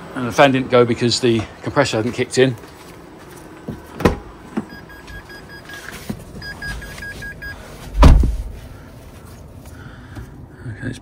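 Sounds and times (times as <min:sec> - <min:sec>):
short electronic beeps: 0:04.7 - 0:07.6
loud low thump: 0:08.0 - 0:08.6.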